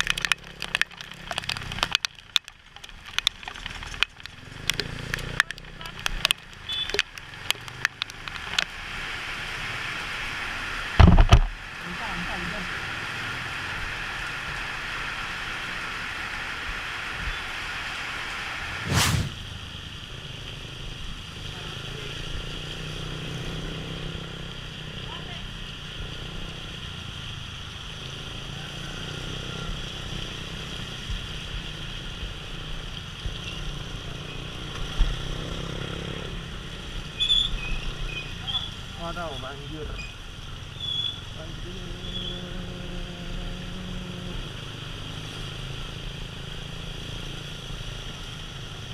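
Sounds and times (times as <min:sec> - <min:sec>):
raindrops ticking on microphone: 0:00.0 - 0:18.0, 0:36.4 - 0:46.6
road noise: 0:00.0 - 0:48.9
wind buffeting and engine rumble: 0:10.9 - 0:12.4
rain hissing: 0:12.6 - 0:22.2.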